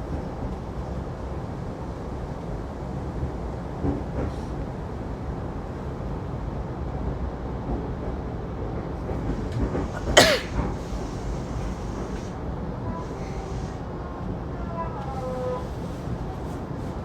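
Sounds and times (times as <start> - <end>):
train car rumble: 0.0 - 17.0
passenger coughing: 9.8 - 10.8.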